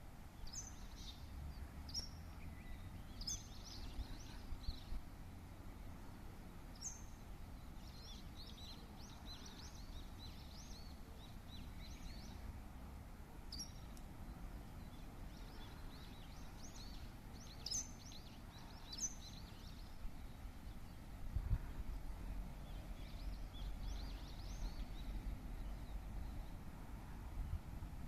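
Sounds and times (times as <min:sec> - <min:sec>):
birds chirping: 0:13.5 - 0:21.1, 0:21.9 - 0:26.6.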